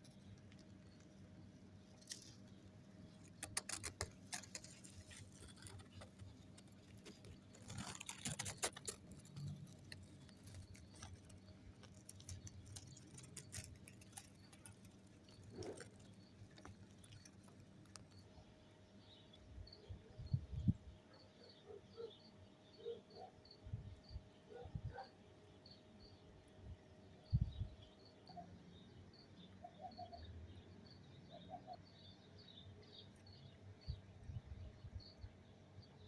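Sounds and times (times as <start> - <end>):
leaves rustling in breeze: 0.0 - 18.1.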